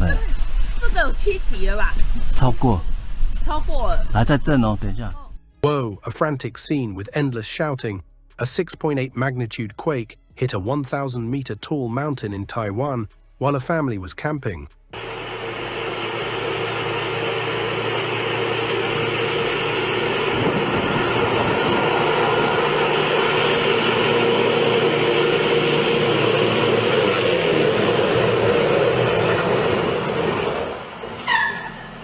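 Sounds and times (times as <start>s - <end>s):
earthquake rumbling roar: 17.8s - 31.1s.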